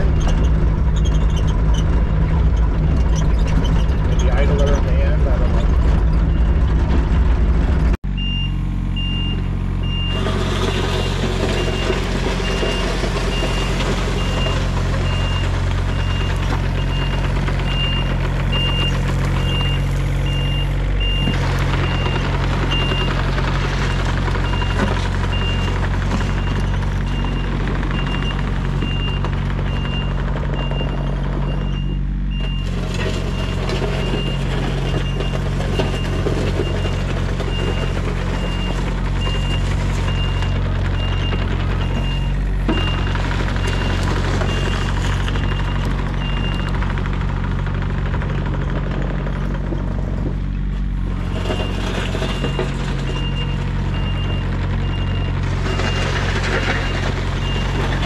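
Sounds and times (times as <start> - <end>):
excavator diesel engine running: 0.0 - 58.0
travel alarm beeping: 8.2 - 10.2.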